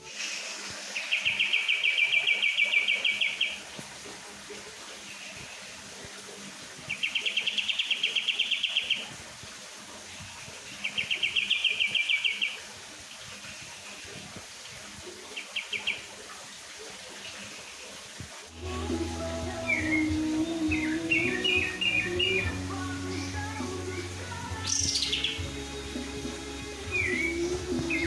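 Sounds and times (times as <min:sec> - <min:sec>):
bird singing rapid trills: 0:24.6 - 0:25.4.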